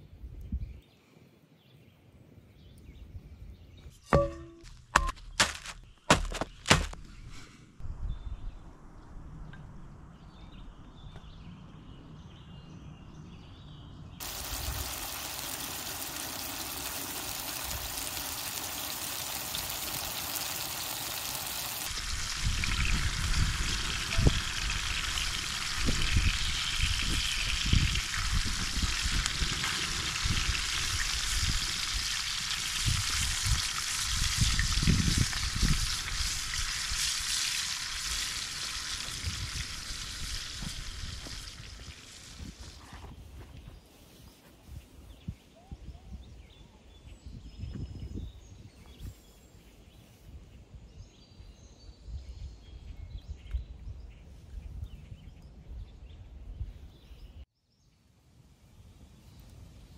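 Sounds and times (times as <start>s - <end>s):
river water hissing: 14.2s - 34.2s.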